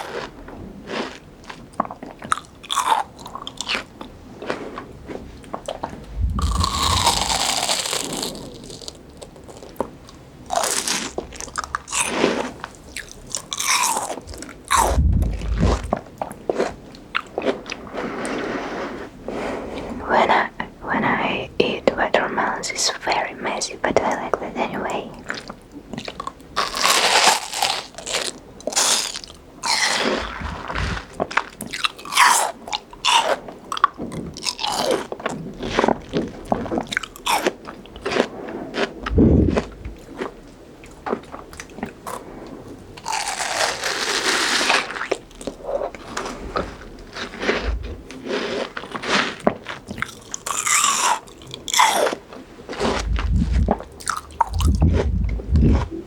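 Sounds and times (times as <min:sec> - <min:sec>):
crunchy fruit chewing: 0:00.0 - 0:19.2, 0:25.1 - 0:42.3, 0:43.0 - 0:56.0.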